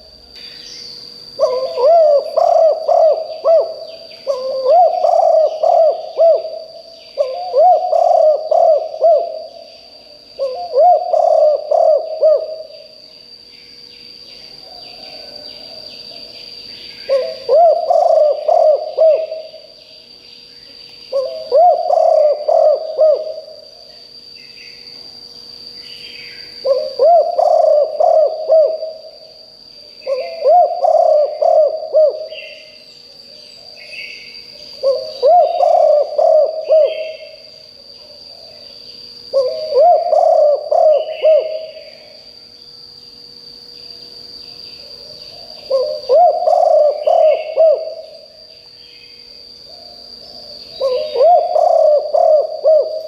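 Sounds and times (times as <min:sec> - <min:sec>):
faint bird chirps: 0:00.0 - 0:42.6, 0:43.7 - 0:53.0
steady high whine: 0:00.0 - 0:53.0
dove cooing: 0:01.4 - 0:09.7, 0:10.3 - 0:13.0, 0:14.5 - 0:16.4, 0:17.0 - 0:19.8, 0:21.1 - 0:23.9, 0:26.6 - 0:29.2, 0:30.0 - 0:32.9, 0:33.6 - 0:38.6, 0:39.3 - 0:42.2, 0:44.8 - 0:48.4, 0:49.7 - 0:53.0.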